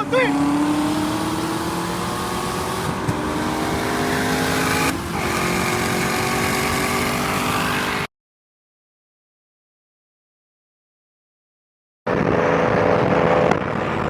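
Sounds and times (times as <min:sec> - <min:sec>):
car engine at full throttle: 0:00.0 - 0:08.1, 0:12.1 - 0:14.0.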